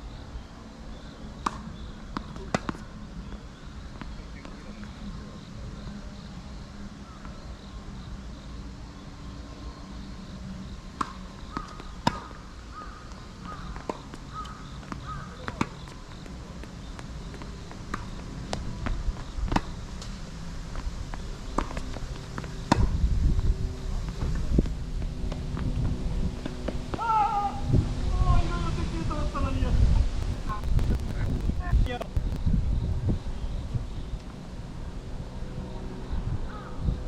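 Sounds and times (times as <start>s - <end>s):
tennis ball struck by rackets: 1.4s - 2.8s, 11.0s - 12.4s, 14.9s - 15.8s, 22.4s - 22.9s
tennis ball bouncing on hard court: 11.0s - 12.3s, 17.9s - 19.7s
wind rumbling on microphone: 16.5s - 37.0s.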